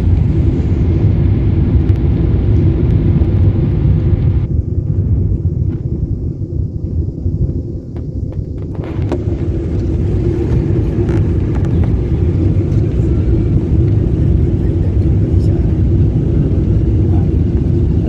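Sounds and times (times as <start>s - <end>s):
airliner engines and airflow rumble: 0.0s - 18.0s.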